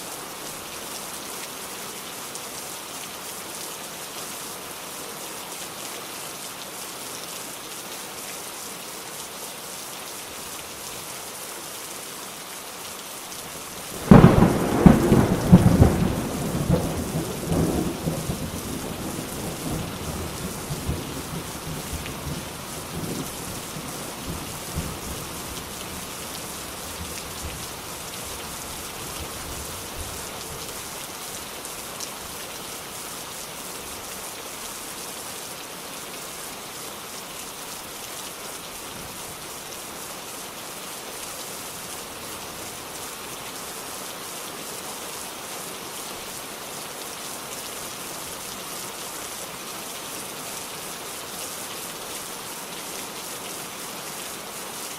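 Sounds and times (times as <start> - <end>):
steady rain falling: 0.0 - 54.9
thunder clap rumbling: 14.0 - 19.8.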